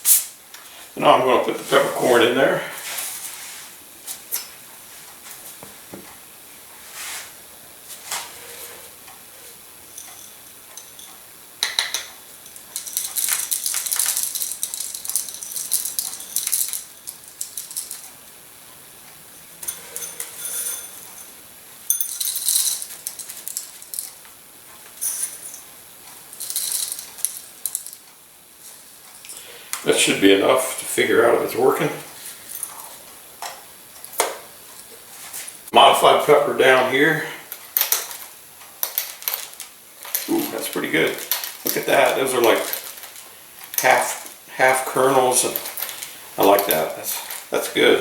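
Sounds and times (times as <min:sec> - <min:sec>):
peppercorns rattling into mill: 0:08.3 - 0:18.2, 0:19.4 - 0:24.3, 0:24.9 - 0:28.1, 0:36.7 - 0:48.0
pepper mill grinding: 0:08.4 - 0:18.2, 0:19.4 - 0:24.3, 0:26.3 - 0:28.1, 0:37.5 - 0:48.0.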